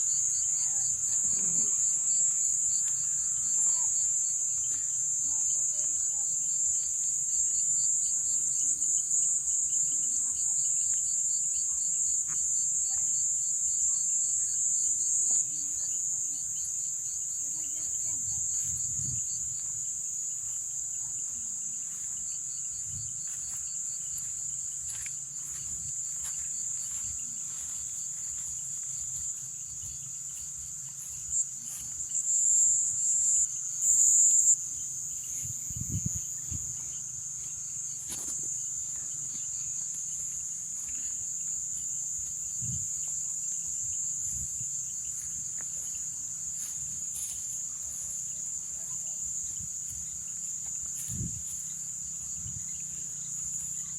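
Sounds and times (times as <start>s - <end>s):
crickets and katydids trilling: 0.0s - 53.9s.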